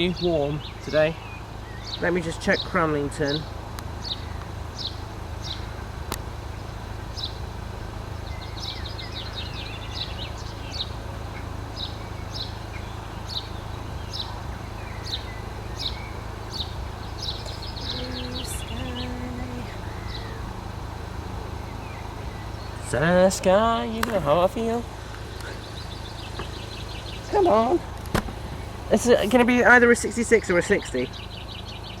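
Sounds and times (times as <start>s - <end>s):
bird trills: 0.0s - 22.9s
low outdoor rumble: 0.0s - 32.0s
songbird chirping: 0.0s - 32.0s.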